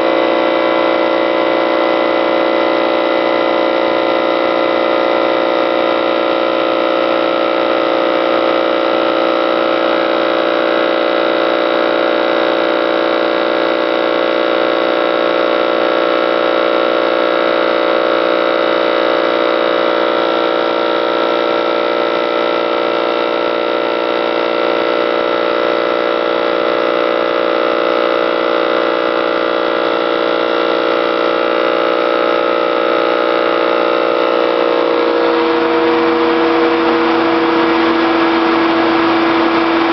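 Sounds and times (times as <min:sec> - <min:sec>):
radial arm saw whining: 0:00.0 - 0:12.2, 0:31.7 - 0:39.9
shop vacuum running: 0:00.0 - 0:39.9.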